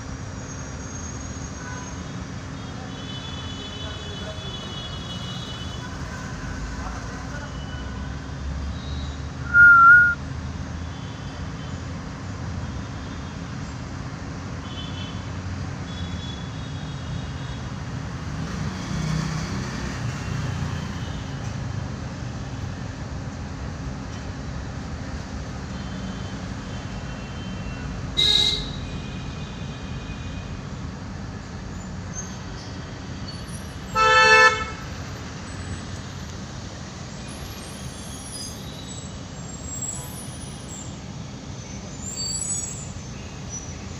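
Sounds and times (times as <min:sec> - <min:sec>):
road traffic rumble: 0:00.0 - 0:43.9
faint high chirps: 0:09.5 - 0:10.2.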